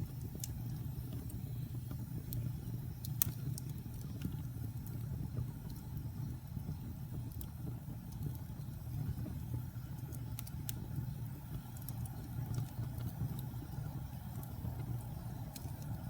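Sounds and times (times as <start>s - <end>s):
fire crackling and popping: 0.0s - 16.0s
fire flames rumbling: 0.0s - 16.0s.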